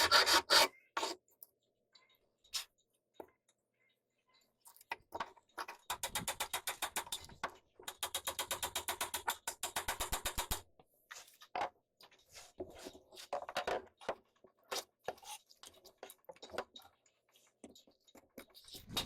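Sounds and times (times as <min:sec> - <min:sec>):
tool clicking rapidly: 0:05.9 - 0:07.3
knocks and scrapes: 0:11.1 - 0:19.0.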